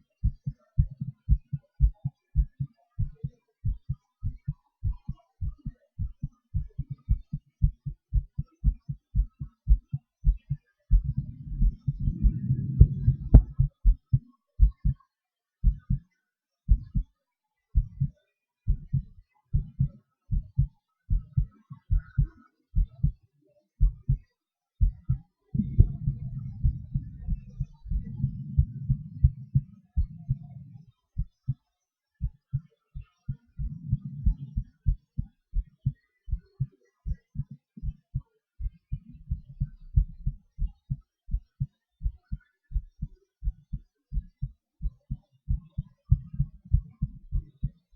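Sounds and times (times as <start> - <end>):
heartbeat thumps: 0.2 - 15.0, 15.6 - 16.0, 16.7 - 17.1, 17.8 - 23.2, 23.8 - 24.2, 24.8 - 31.6, 32.2 - 47.9
low rushing sound: 11.1 - 13.7.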